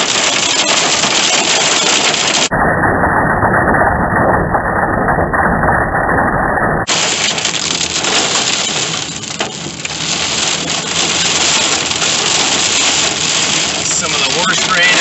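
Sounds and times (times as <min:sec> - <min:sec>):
torrential rain on car roof: 0:00.0 - 0:02.5, 0:06.9 - 0:15.0.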